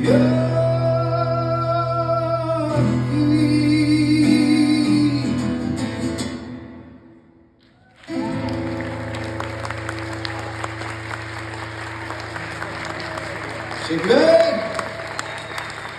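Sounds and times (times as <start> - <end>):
audience applause: 7.8 - 15.9.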